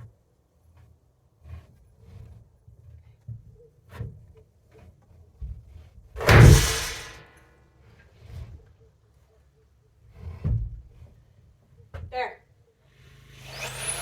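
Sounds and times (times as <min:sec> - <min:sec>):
loud ringing bang: 0:06.2 - 0:07.2.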